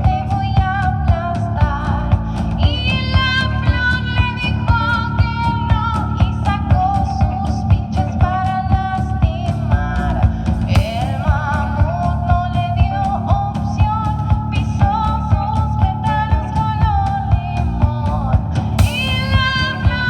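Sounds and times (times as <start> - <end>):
drums steady beat: 0.0 - 20.0
live rock band playing: 18.6 - 20.0.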